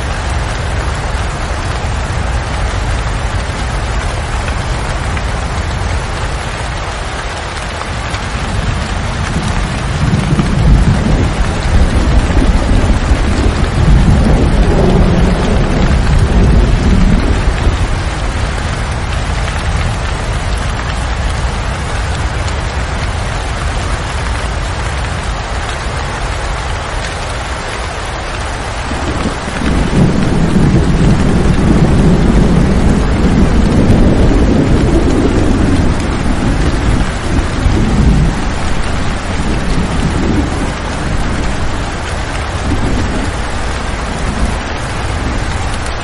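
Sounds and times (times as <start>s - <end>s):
steady rain: 0.0s - 46.0s
rolling thunder: 7.9s - 21.1s, 28.4s - 46.0s.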